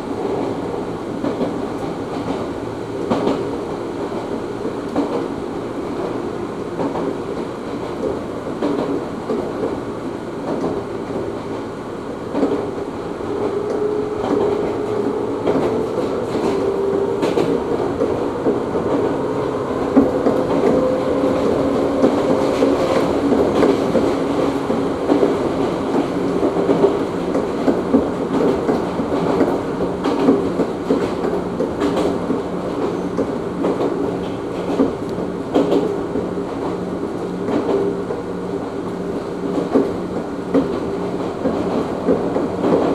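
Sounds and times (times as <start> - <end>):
train wheels rumbling on rail: 0.0 - 42.9
wheels clacking over rail joints: 12.3 - 38.2.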